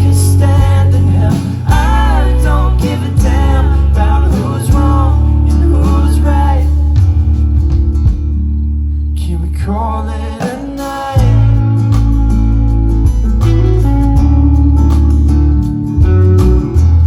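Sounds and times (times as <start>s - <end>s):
person singing: 0.0s - 7.1s, 9.2s - 12.0s
guitar: 0.0s - 17.0s.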